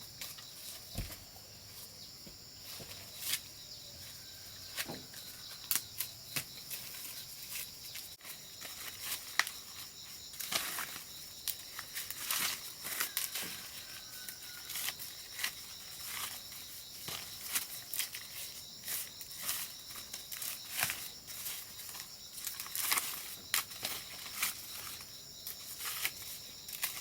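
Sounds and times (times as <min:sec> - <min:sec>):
high insect chorus: 0:00.0 - 0:27.0.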